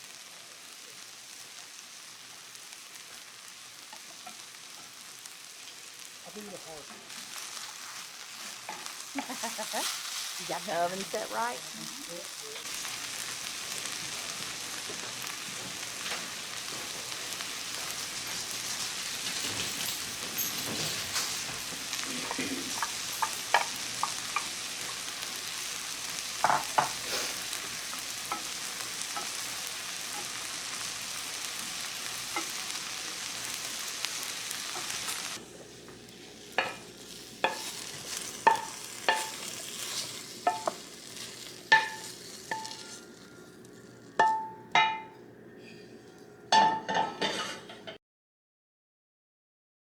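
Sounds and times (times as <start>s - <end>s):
food sizzling in a frying pan: 0.0s - 48.0s
utensil clinking against pan: 41.7s - 43.4s.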